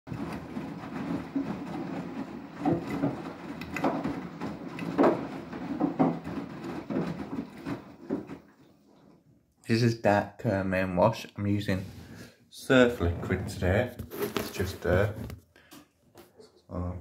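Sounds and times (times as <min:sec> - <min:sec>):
wet load thudding: 0:00.1 - 0:08.9
washing machine motor hum: 0:00.1 - 0:09.4, 0:11.5 - 0:15.3
water sloshing: 0:00.1 - 0:09.4, 0:11.8 - 0:15.2.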